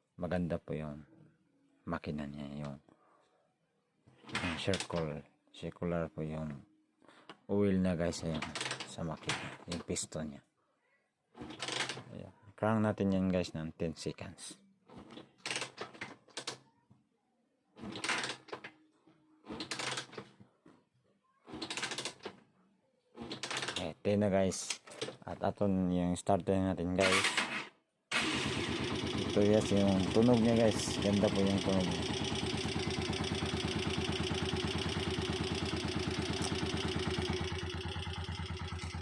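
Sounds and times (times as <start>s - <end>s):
motorcycle engine cranking without firing: 27.0s - 39.0s.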